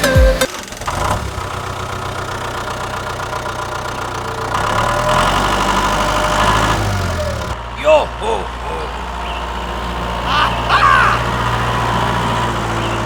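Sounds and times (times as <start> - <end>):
engine idling: 0.0 - 6.4.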